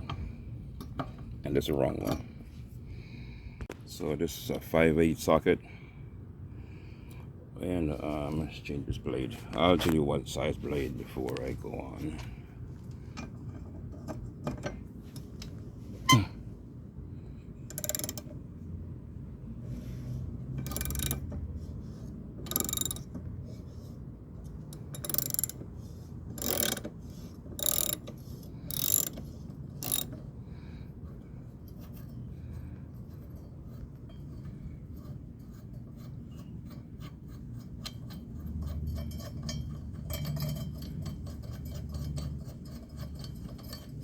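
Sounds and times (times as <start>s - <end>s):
socket ratchet rasping: 17.6s - 18.4s, 20.4s - 23.7s, 24.4s - 30.3s.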